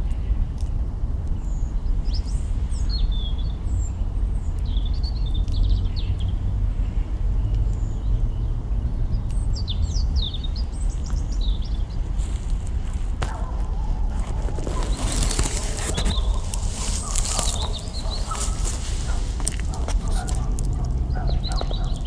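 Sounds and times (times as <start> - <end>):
small birds chirping: 0.0 - 22.0
steady low rumble: 0.8 - 22.0
campfire twigs crackling: 9.2 - 22.0.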